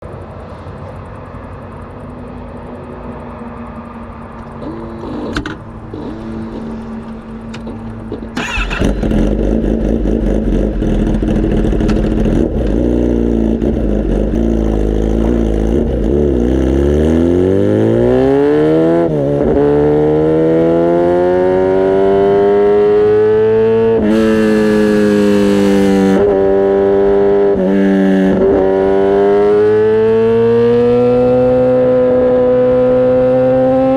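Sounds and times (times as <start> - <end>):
motorcycle engine idling and revving: 0.0 - 33.9
motorcycle accelerating: 2.6 - 33.9.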